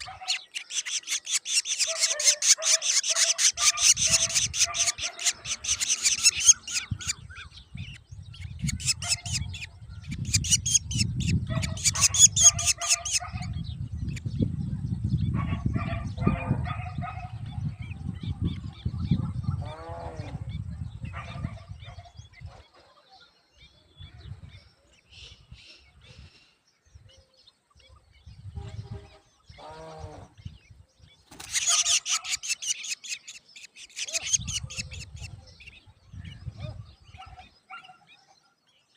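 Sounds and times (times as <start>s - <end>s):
nestlings chattering: 0.0s - 14.3s, 31.2s - 35.8s.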